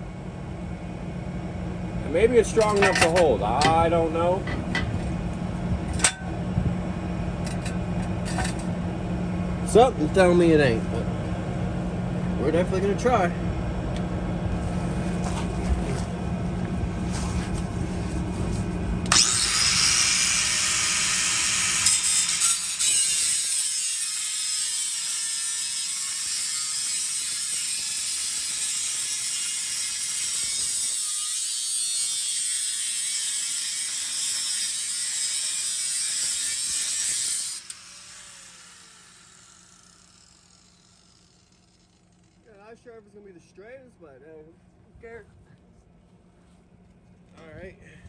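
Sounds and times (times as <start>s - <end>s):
power tool cutting metal pipe: 2.6s - 3.3s, 7.5s - 8.7s, 19.1s - 42.4s.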